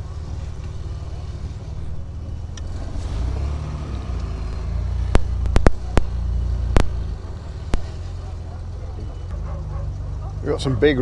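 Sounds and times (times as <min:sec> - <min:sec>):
car engine running at low speed: 0:00.0 - 0:11.0
sharp clicks or knocks: 0:04.2 - 0:08.0.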